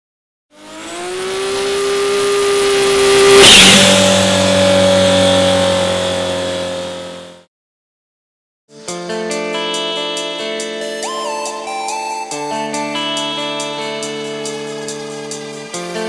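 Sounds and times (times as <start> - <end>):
race car engine at high revs: 0.5 - 7.5
loud burst: 2.4 - 6.8.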